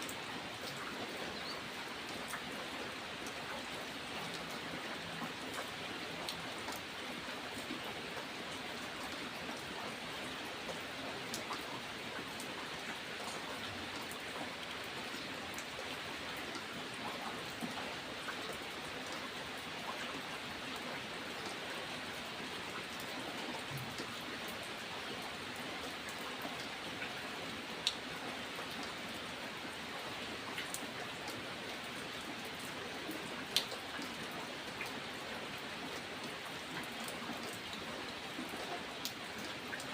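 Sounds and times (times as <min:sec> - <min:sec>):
raindrops ticking on a surface: 0:00.0 - 0:39.9
steady rain: 0:00.0 - 0:39.9.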